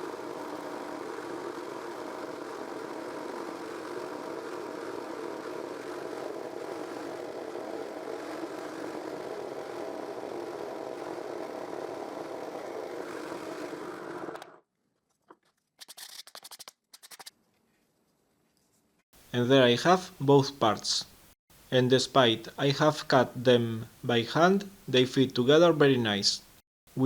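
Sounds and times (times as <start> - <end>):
jigsaw cutting wood: 0.0 - 14.6.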